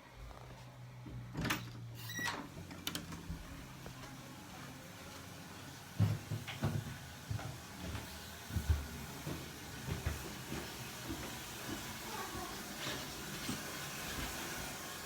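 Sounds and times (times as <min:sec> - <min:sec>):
footsteps going down stairs: 0:05.1 - 0:14.8.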